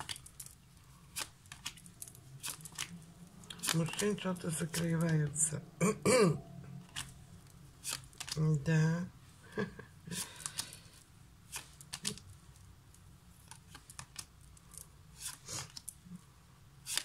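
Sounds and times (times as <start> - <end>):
cards rustling and flicking: 0.0 - 5.1, 7.8 - 8.5, 10.1 - 12.3, 13.4 - 16.0.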